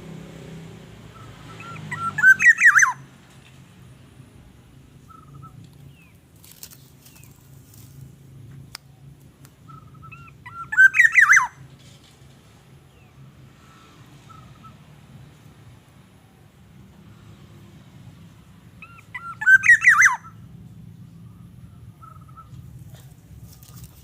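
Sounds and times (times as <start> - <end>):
squeaky warbling bird calls: 1.1 - 3.1, 5.0 - 6.1, 9.6 - 11.7, 18.8 - 20.5, 21.9 - 22.7
faint bird chirps: 5.0 - 6.2, 8.8 - 15.3, 18.8 - 24.0.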